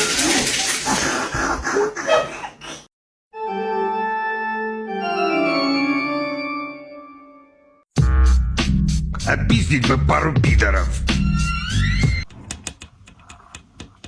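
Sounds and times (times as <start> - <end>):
organ chords: 3.4 - 8.5.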